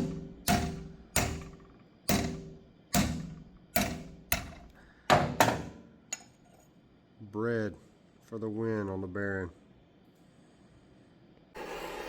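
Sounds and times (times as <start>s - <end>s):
hammer striking metal: 0.0s - 5.8s.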